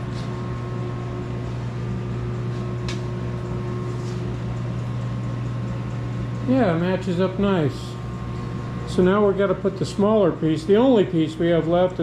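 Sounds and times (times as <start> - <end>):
machine hum with faint whine: 0.0 - 12.0.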